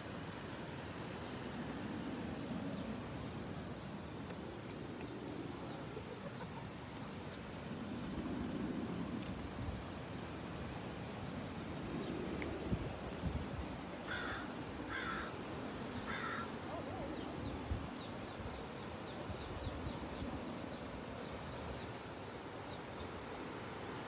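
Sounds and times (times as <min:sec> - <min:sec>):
harsh crow-like bird calls: 0:14.0 - 0:16.6.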